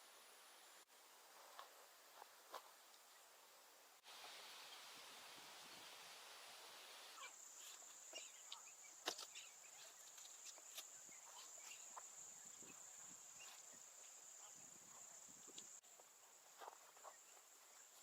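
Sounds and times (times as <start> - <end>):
crickets trilling: 4.1 - 18.0.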